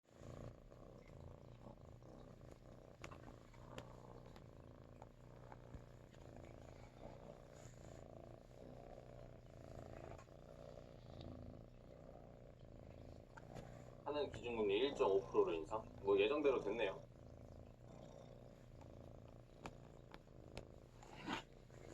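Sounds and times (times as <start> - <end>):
cat purring: 0.0 - 21.9
faint clicks: 0.9 - 6.6, 18.8 - 20.8.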